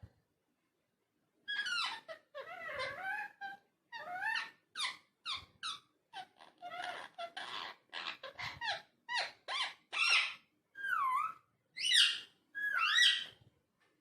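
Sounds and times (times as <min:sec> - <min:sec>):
parakeet chirps and squawks: 0:01.5 - 0:13.4
parakeet whistled calls: 0:10.0 - 0:13.3.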